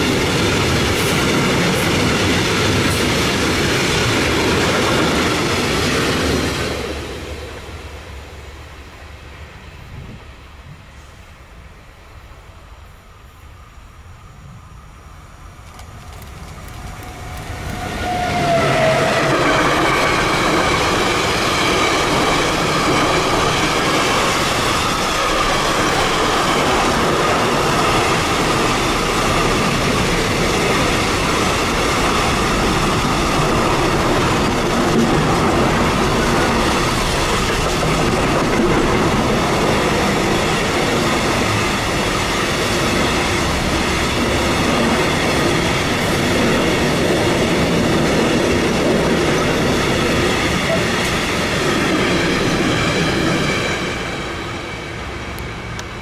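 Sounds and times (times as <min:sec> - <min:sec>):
freight train wheels rolling: 0:00.0 - 0:08.6, 0:15.1 - 0:56.0.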